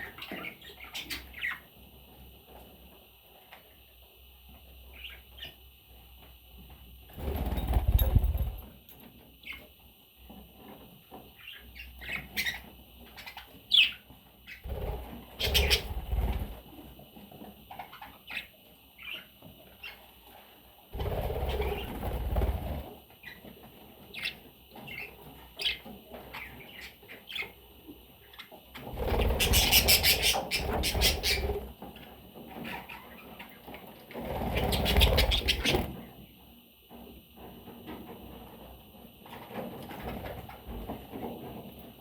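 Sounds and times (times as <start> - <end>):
wings flapping: 7.1 - 8.7, 14.7 - 16.6, 21.0 - 22.9, 28.8 - 31.7, 34.1 - 36.1
budgerigars chirping: 15.4 - 16.0, 29.2 - 31.5, 34.7 - 35.9.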